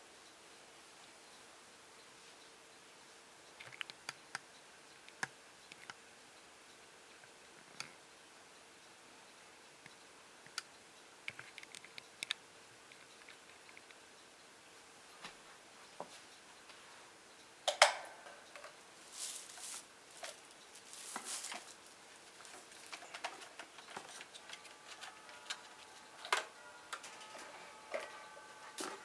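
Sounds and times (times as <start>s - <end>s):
faint steady tone: 0.0s - 29.0s
rustling swishes: 19.0s - 22.4s.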